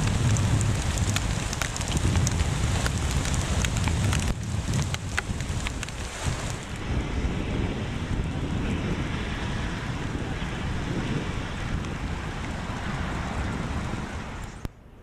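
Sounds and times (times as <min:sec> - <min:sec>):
hail pelting down: 0:00.0 - 0:06.8
wind buffeting microphone: 0:00.0 - 0:15.0.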